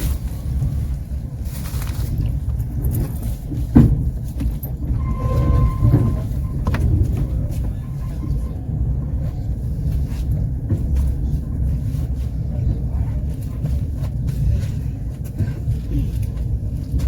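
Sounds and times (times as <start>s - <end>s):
train rumbling on board: 0.0s - 17.0s
train wheel clicks: 2.7s - 9.3s.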